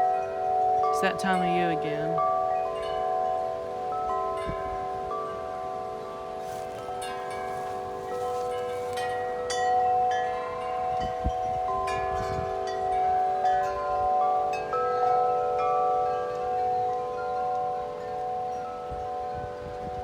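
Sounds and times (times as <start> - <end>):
metal wind chimes ringing: 0.0 - 20.0
wind buffeting microphone: 1.8 - 15.2, 16.3 - 20.0.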